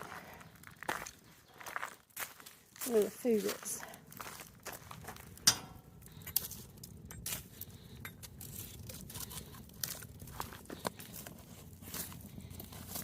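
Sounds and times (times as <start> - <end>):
faint fire crackle: 0.0 - 13.0
coals and wood knocking: 3.6 - 13.0.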